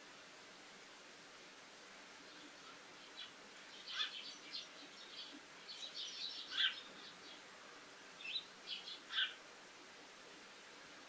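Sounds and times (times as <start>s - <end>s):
birds chirping: 2.2s - 7.5s, 8.2s - 9.4s.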